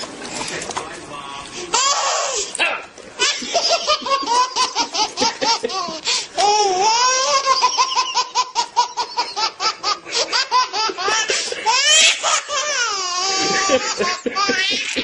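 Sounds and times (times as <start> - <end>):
baby squealing: 1.7 - 2.5, 6.4 - 9.3, 11.7 - 13.8
baby laughing: 3.2 - 15.0.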